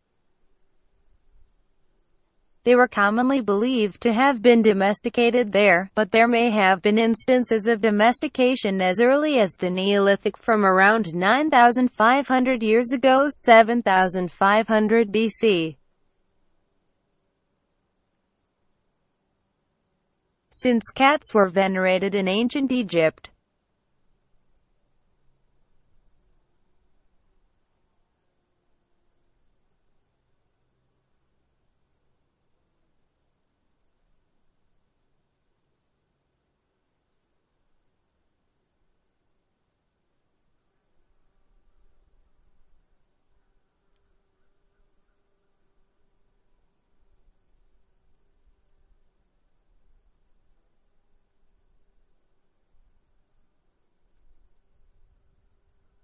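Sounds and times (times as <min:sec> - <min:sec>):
faint insect chirp: 0:00.0 - 0:02.7, 0:14.8 - 0:22.5, 0:23.2 - 0:56.0.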